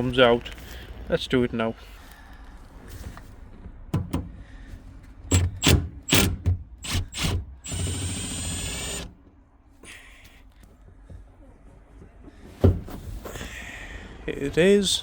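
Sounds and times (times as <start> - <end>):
tool clicks and knocks: 3.9 - 4.4
power tool whirring: 5.3 - 9.2.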